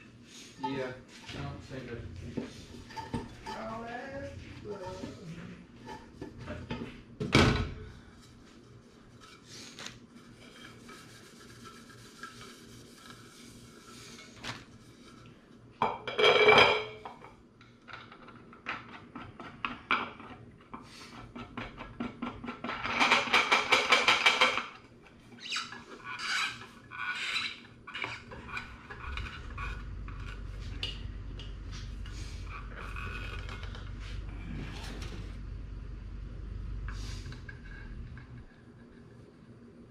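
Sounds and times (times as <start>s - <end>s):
low steady hum: 0.0s - 19.0s, 24.7s - 39.9s.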